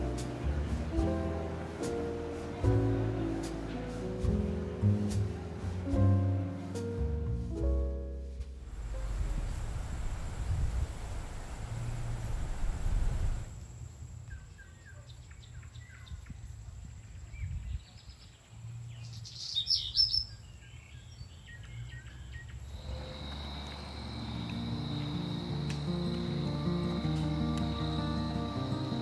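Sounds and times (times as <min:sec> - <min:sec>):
soft music: 0:00.0 - 0:10.3, 0:22.8 - 0:29.0
low rumble: 0:07.1 - 0:13.7
small birds chirping: 0:14.2 - 0:25.3.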